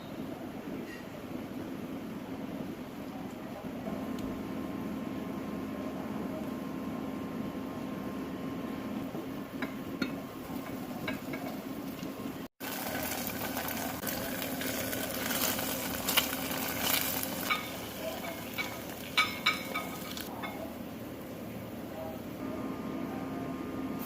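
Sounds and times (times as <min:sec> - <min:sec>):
steady low hum: 0:00.0 - 0:24.0
utensil stirring in a pot: 0:09.6 - 0:20.7.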